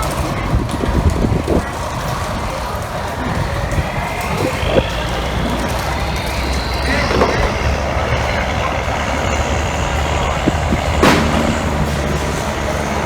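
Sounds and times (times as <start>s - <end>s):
boat engine droning: 0.0s - 13.0s
sharp knock: 11.0s - 12.2s.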